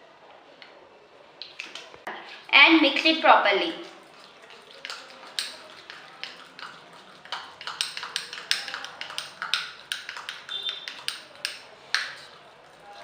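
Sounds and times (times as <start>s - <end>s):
utensil clicking against mug: 4.8s - 12.3s.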